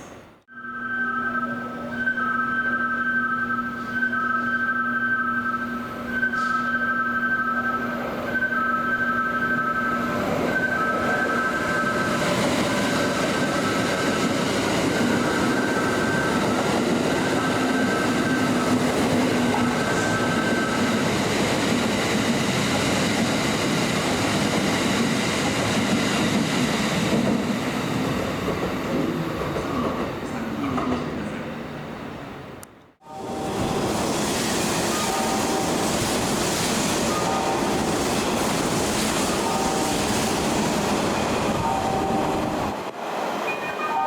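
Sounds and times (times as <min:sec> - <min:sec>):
two-tone electronic signal: 0:00.5 - 0:12.2
train wheels rumbling on rails: 0:09.3 - 0:31.6, 0:33.2 - 0:43.6.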